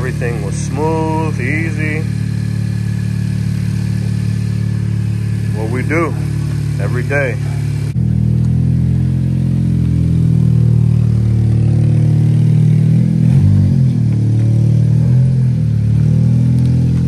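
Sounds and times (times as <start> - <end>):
car engine and exhaust running: 0.0 - 17.0.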